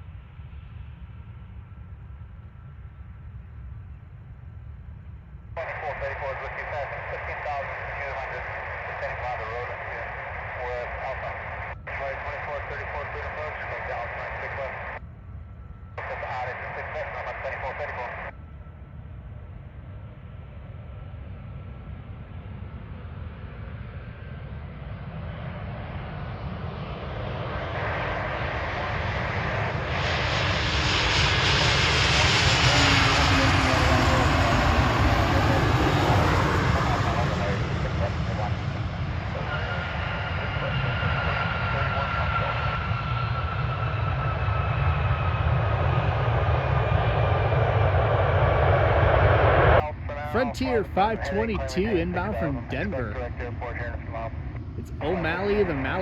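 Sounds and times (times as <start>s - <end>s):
jet airliner engines whining: 0.0s - 56.0s.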